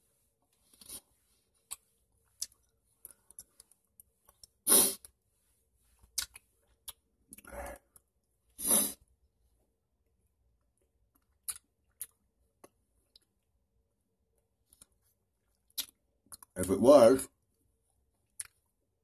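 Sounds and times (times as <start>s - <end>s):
wet chewing clicks and smacks: 1.6s - 5.2s, 6.0s - 8.3s, 10.5s - 13.6s, 14.4s - 16.6s, 17.9s - 19.0s.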